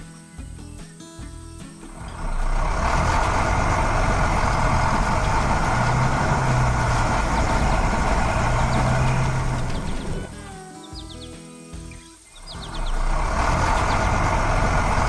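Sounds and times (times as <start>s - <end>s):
large vehicle engine running: 1.8s - 10.4s, 12.4s - 15.0s.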